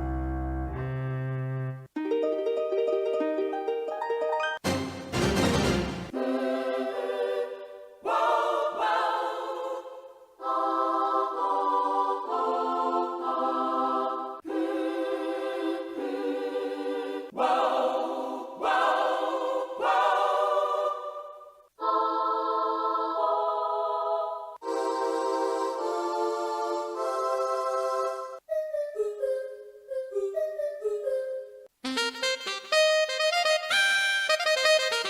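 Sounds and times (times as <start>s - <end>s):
synthesized choir chords on keyboard: 6.1s - 28.4s.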